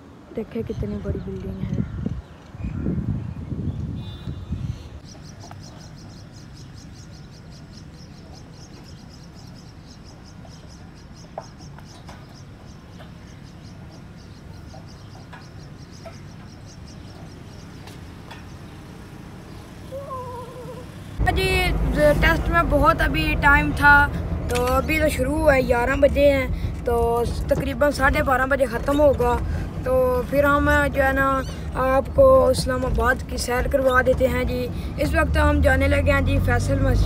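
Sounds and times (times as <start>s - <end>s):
birds chirping: 0.3s - 37.0s
steady low rumble: 21.2s - 37.0s.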